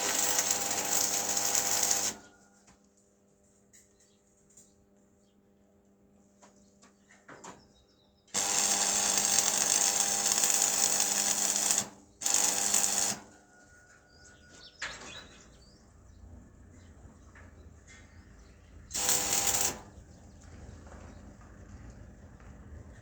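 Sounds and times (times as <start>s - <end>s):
power tool running: 0.0s - 2.2s, 8.4s - 13.4s, 18.9s - 20.0s.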